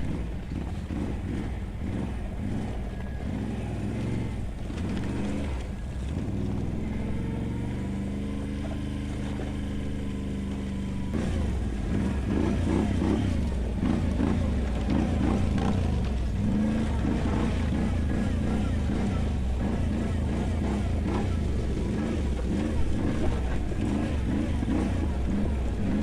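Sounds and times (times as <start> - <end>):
atv engine running: 0.0 - 26.0.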